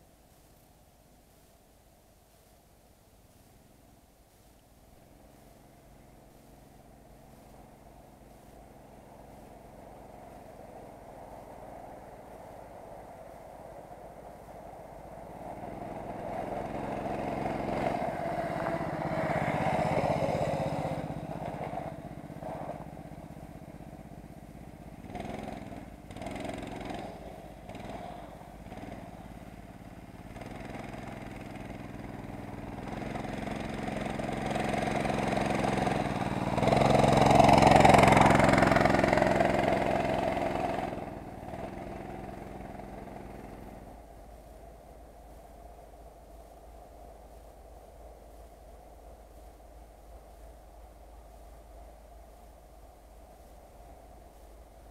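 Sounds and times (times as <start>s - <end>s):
motorcycle engine running: 5.0s - 46.7s.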